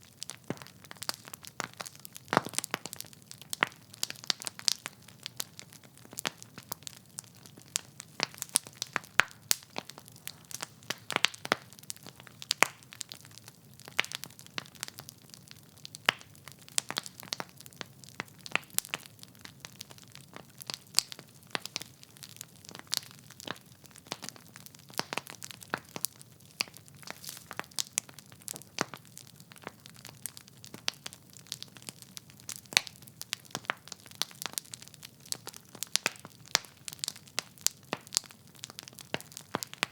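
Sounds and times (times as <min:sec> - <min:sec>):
logs crackling and popping: 0:00.0 - 0:39.9
faint low hiss: 0:26.3 - 0:28.1.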